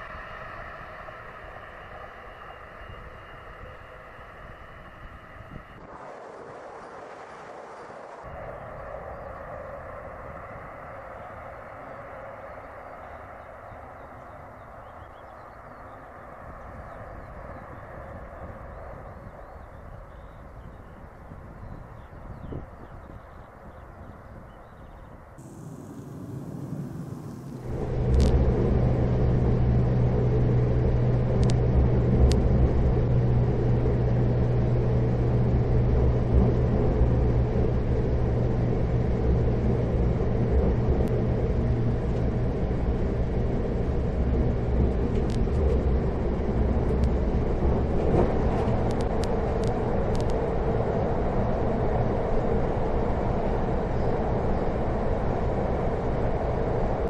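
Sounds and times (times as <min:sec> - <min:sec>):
train running rumble: 0:25.4 - 0:57.0.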